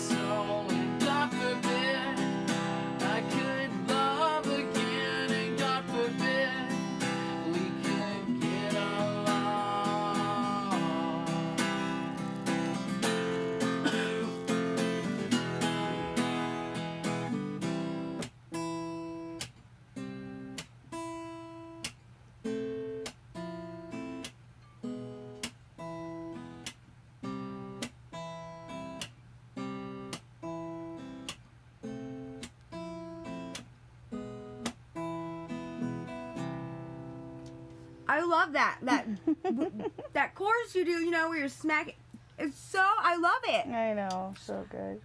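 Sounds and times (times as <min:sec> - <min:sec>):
acoustic guitar strummed chords: 0:00.0 - 0:40.6.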